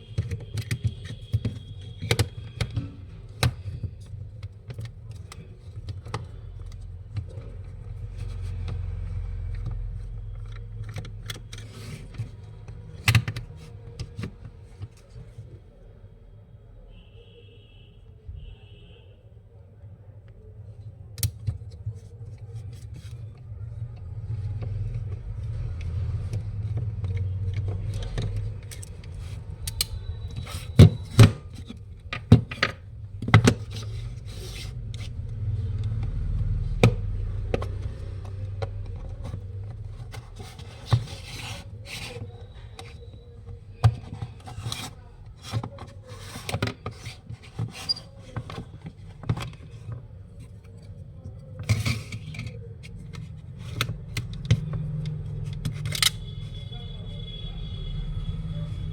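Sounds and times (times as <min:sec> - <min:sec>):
plastic clicks and snaps: 0:24.8 - 0:32.3
plastic casing scraping: 0:37.0 - 0:56.6.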